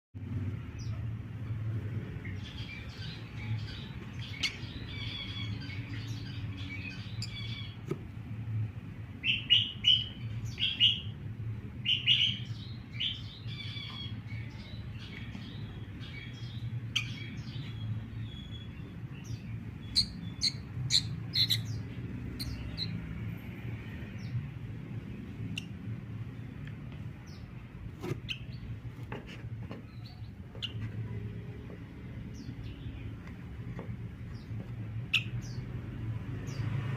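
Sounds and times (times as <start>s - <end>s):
bird chirping high calls: 2.3s - 7.8s, 9.2s - 11.2s, 11.8s - 23.1s, 34.3s - 35.7s.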